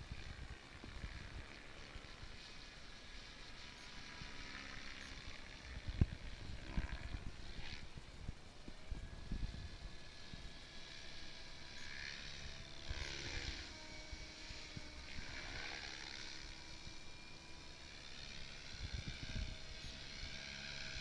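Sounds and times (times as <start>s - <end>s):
model helicopter rotor whine: 0.0s - 21.0s
steady rushing hiss: 0.0s - 21.0s.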